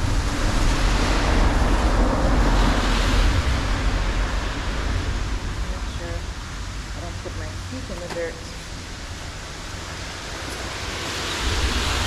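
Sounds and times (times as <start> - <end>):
vehicle passing with deep rumble: 0.0 - 7.6.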